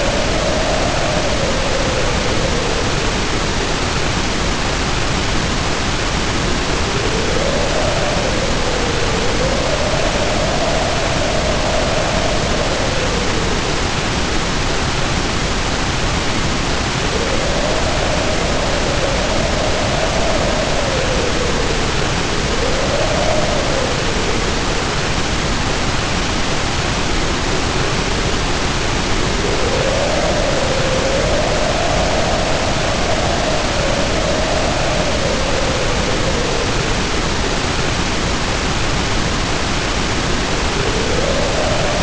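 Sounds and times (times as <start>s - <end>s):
heavy rain falling: 0.0s - 42.0s
wind howling: 0.0s - 42.0s.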